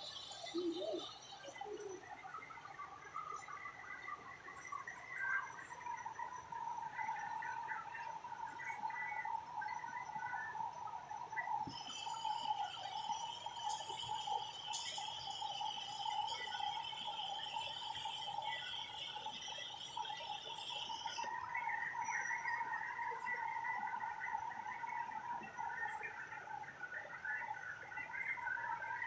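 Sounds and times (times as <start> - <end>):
chorus of chirping: 0.0 - 29.0
lower busier chirping: 0.0 - 29.0.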